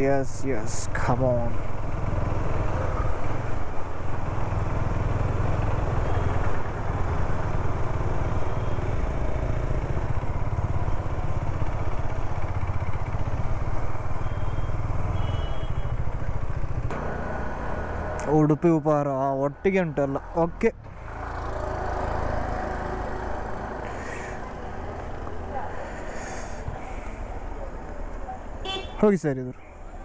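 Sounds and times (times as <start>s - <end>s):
road noise on wet street: 0.0s - 30.0s
motorcycle engine running: 1.6s - 18.8s.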